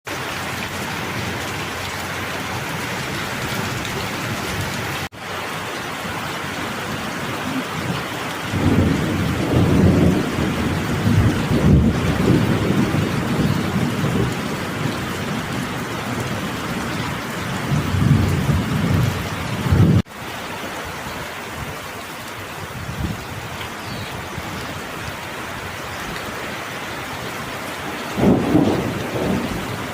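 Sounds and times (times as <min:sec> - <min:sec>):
steady rain: 0:00.0 - 0:29.9
rolling thunder: 0:08.5 - 0:16.4, 0:28.1 - 0:29.9.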